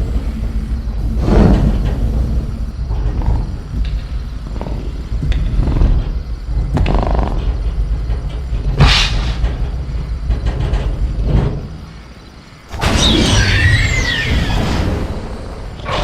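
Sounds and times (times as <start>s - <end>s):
deep rumbling growl: 0.0s - 11.9s
metal cage rattling: 5.6s - 11.9s.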